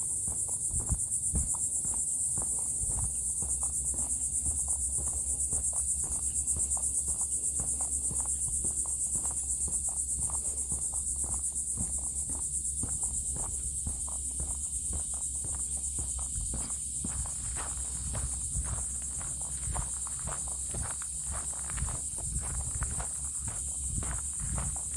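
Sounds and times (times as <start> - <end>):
footsteps on boardwalk planks: 0.0 - 24.9
high-pitched insect chorus: 0.0 - 24.9.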